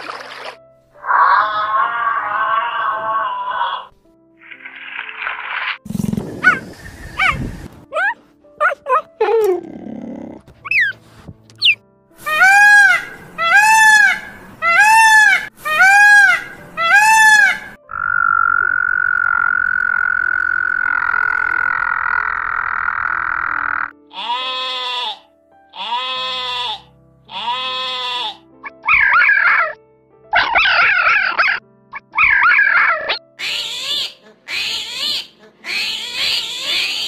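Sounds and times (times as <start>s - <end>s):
animal calls rising and falling: 1.0s - 7.4s, 11.6s - 23.9s
frog calling: 12.4s - 25.2s
sheep bleating: 25.8s - 28.4s.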